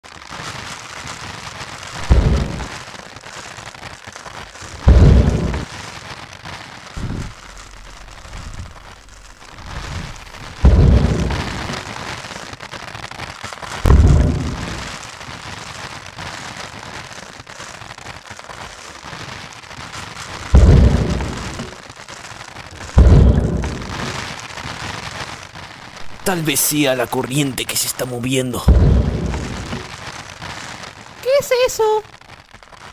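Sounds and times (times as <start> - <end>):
rain hiss: 0.4 - 19.0, 19.7 - 32.9
heavy booming thuds: 2.0 - 2.7, 4.6 - 5.7, 7.0 - 11.8, 13.9 - 15.0, 20.3 - 21.8, 22.8 - 24.3, 28.7 - 29.9.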